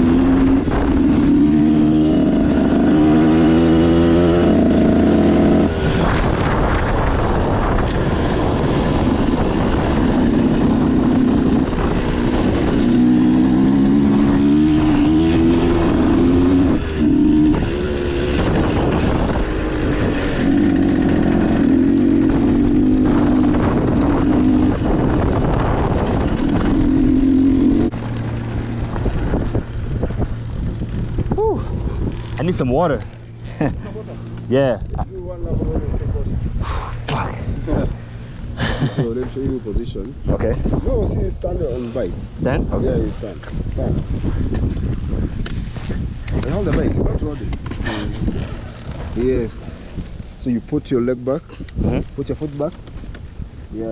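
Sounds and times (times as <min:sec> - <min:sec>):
dirt bike engine revving: 0:00.0 - 0:31.4.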